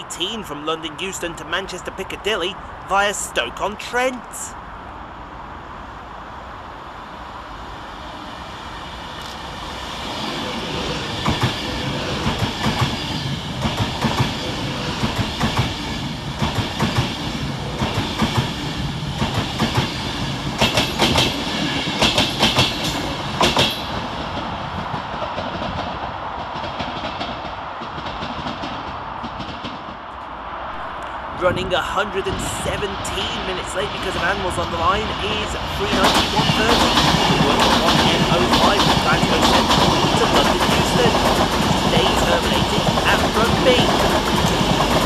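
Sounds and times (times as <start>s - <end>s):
electric train passing: 0.0s - 45.0s
wheels clicking over track: 35.9s - 45.0s.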